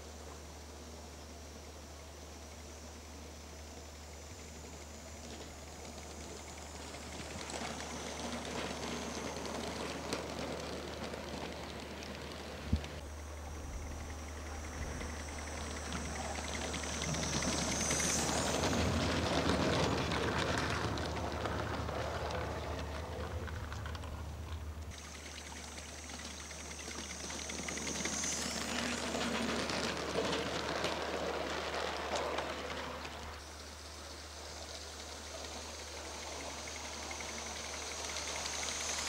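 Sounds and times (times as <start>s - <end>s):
model locomotive rushing hiss: 0.0s - 23.2s, 24.9s - 39.0s
thin high whine: 13.0s - 20.0s, 24.9s - 30.2s.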